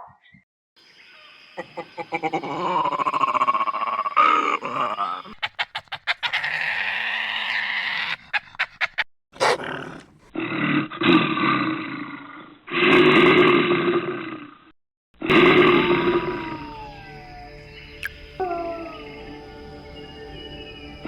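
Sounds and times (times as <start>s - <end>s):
rough animal call: 1.6s - 13.4s
animal growling calls: 1.6s - 14.6s, 15.2s - 19.2s.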